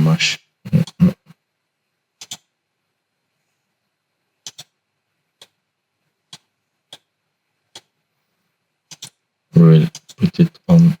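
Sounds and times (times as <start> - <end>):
computer mouse clicks: 2.2 - 2.5, 4.4 - 4.8, 5.4 - 5.6, 6.3 - 7.1, 7.7 - 8.0, 8.9 - 9.2, 9.9 - 10.3.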